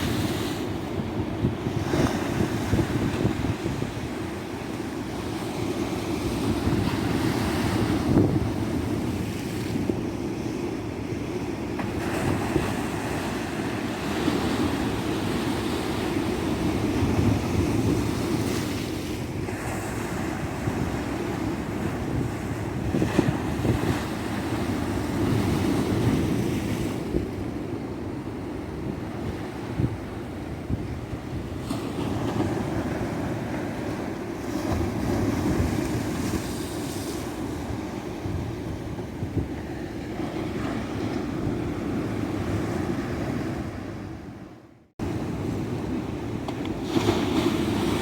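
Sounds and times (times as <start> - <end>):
waves breaking on beach: 0.0 - 10.2, 45.0 - 48.0
wind buffeting microphone: 0.0 - 10.2, 12.0 - 44.4.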